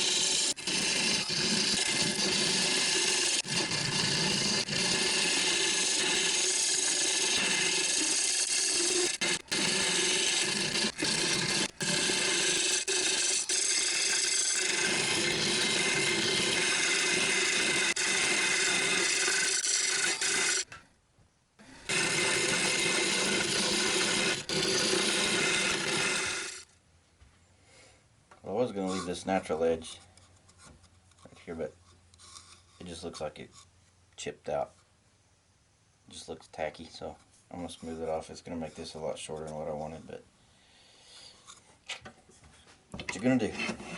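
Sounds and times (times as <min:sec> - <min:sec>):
lathe humming: 0:00.0 - 0:20.7, 0:21.7 - 0:26.6
tool scraping spinning wood: 0:00.0 - 0:20.8, 0:21.6 - 0:26.7, 0:43.1 - 0:43.9.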